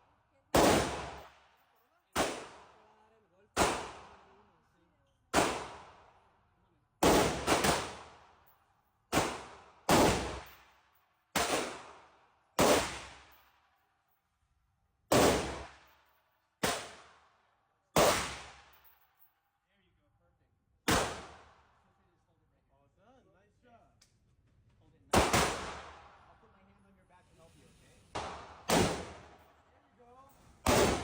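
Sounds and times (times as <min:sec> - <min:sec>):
gunshots ringing: 0:00.6 - 0:01.3, 0:02.2 - 0:02.7, 0:03.6 - 0:04.1, 0:07.0 - 0:08.2, 0:09.2 - 0:10.5, 0:11.4 - 0:11.8, 0:12.6 - 0:13.1, 0:20.9 - 0:21.5, 0:25.1 - 0:26.2, 0:28.1 - 0:29.6, 0:30.6 - 0:31.0.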